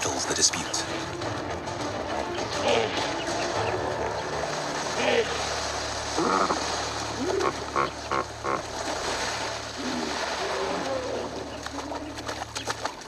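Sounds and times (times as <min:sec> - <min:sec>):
water splashing: 0:00.0 - 0:13.0
hippos grunting: 0:02.4 - 0:03.3, 0:06.1 - 0:08.7.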